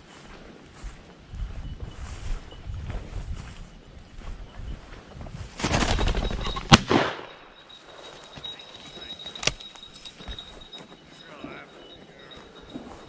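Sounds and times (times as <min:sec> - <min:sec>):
shotgun shots: 0:05.6 - 0:07.4.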